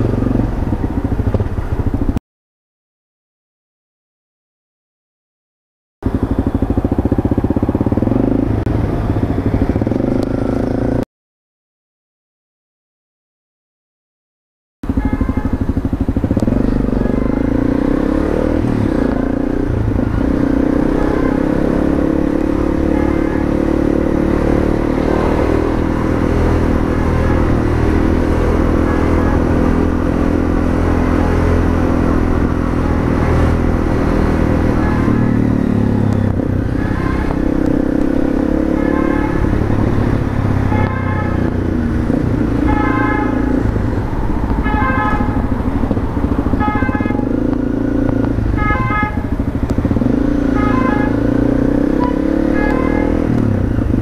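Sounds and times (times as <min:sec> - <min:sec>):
motorcycle engine revving: 0:00.0 - 0:02.2, 0:06.0 - 0:11.0, 0:14.8 - 0:54.0.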